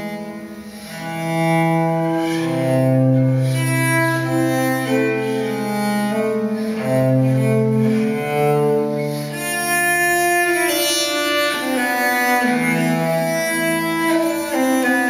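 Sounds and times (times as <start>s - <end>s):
bowed string music on loudspeakers: 0.0s - 15.0s.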